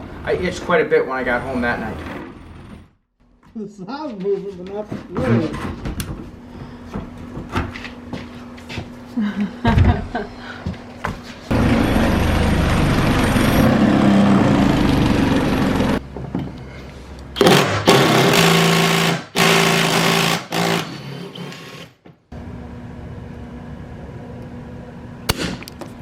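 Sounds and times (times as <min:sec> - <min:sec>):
power driver running: 0:11.5 - 0:16.0.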